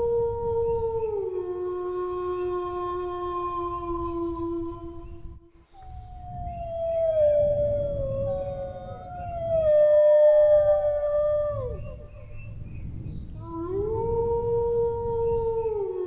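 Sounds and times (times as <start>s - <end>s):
dogs howling: 6.0s - 12.4s
low background rumble: 6.1s - 16.0s.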